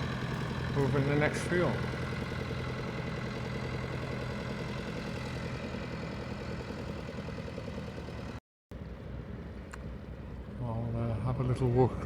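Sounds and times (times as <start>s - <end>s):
tractor engine idling: 0.0s - 8.4s.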